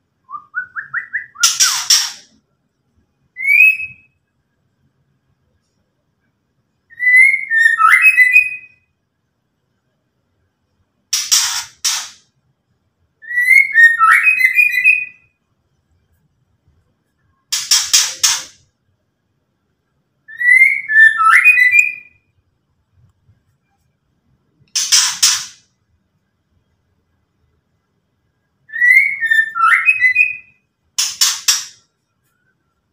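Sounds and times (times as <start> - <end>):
harsh rasping bird chatters: 1.4 - 2.3, 11.1 - 12.2, 24.8 - 25.6.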